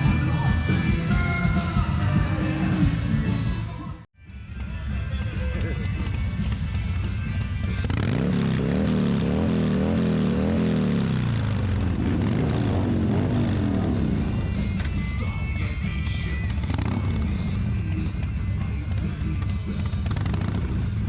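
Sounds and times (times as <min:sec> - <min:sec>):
background music: 0:00.0 - 0:21.0
motorcycle engine revving: 0:04.2 - 0:21.0.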